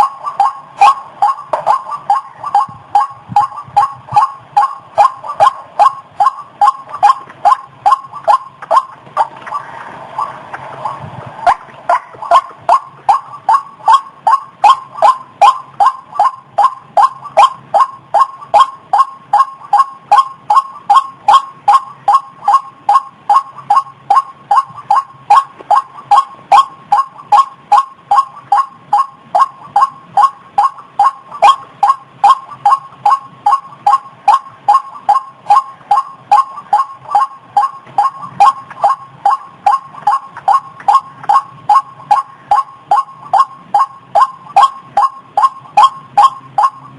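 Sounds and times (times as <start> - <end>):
waterhen calling: 11.5 - 22.2.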